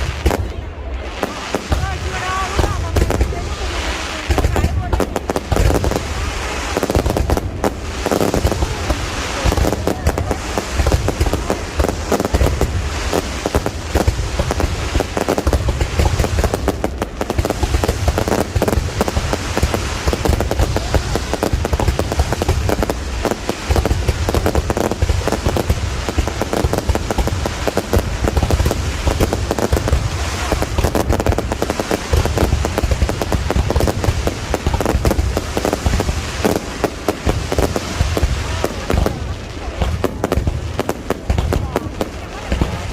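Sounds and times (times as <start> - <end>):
deep fireworks booms: 0.0 - 42.9
fireworks bangs and crackles: 0.0 - 42.9.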